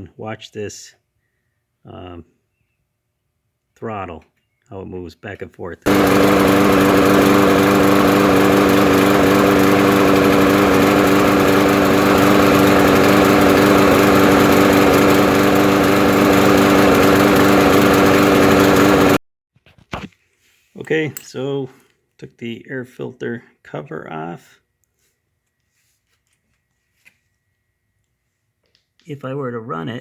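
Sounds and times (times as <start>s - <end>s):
lawn mower engine running: 5.9s - 19.2s.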